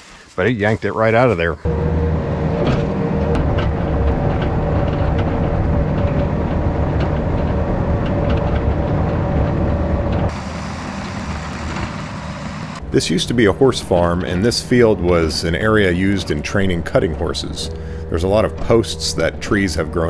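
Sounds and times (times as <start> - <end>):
excavator diesel engine running: 1.7 - 20.0
steady high tone: 12.3 - 20.0.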